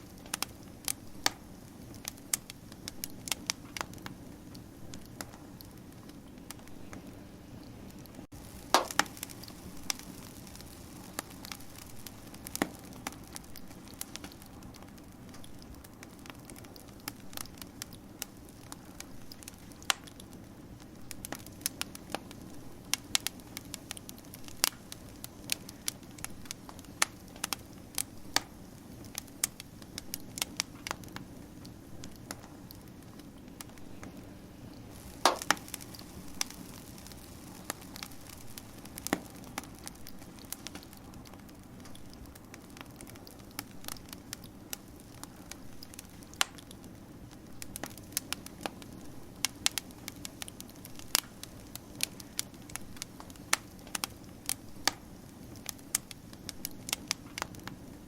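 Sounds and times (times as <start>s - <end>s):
low hum of burning: 0.0s - 58.0s
wood fire crackling and popping: 0.0s - 58.0s.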